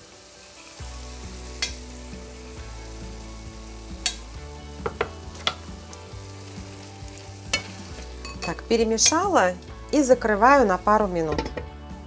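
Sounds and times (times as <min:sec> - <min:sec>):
egg sizzling in frying pan: 0:00.0 - 0:10.1
utensil clicking on pan: 0:01.6 - 0:01.8, 0:04.0 - 0:06.1, 0:07.5 - 0:08.6.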